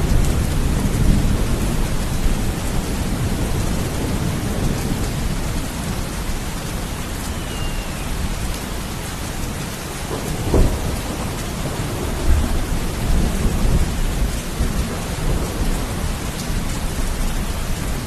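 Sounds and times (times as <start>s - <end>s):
heavy rain: 0.0s - 18.0s
rolling thunder: 0.0s - 18.0s
loud thunder clap: 10.1s - 16.6s.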